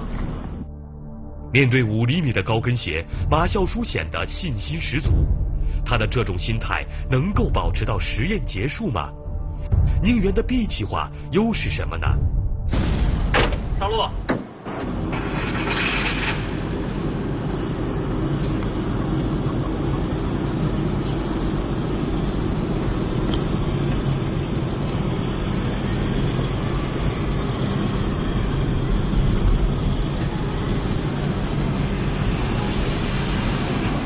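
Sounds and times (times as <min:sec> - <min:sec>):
car engine droning: 0:14.4 - 0:34.0.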